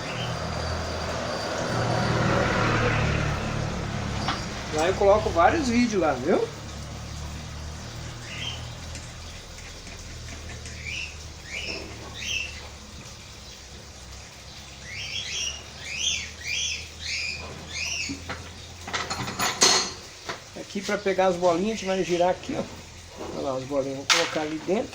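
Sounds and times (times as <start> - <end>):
small bird chirping: 0.0 - 2.0, 7.0 - 18.8.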